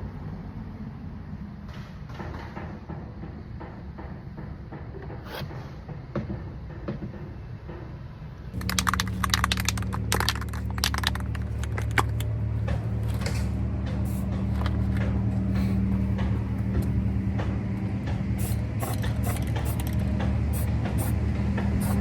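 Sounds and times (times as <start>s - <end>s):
sharp clicks and rattling taps: 8.5s - 22.0s
steady low hum: 8.5s - 22.0s
low rumble: 8.6s - 22.0s.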